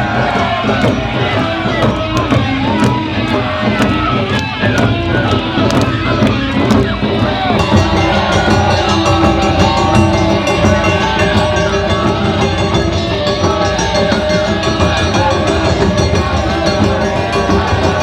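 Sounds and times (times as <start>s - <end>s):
taiko drums beating: 0.0s - 18.0s
pitched melody: 4.1s - 18.0s.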